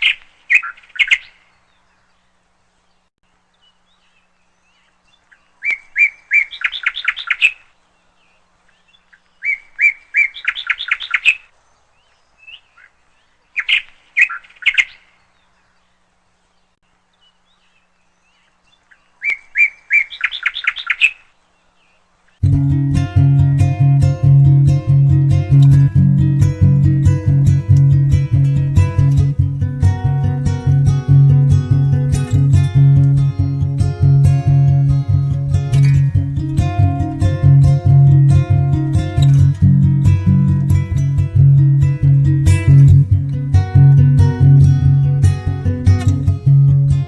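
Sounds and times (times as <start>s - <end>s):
songbird singing: 0.0s - 47.0s
acoustic guitar music: 22.4s - 47.0s.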